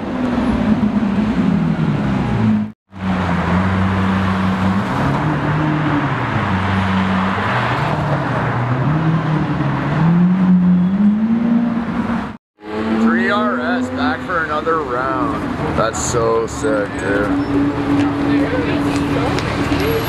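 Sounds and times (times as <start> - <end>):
street traffic engines: 0.0 - 20.0.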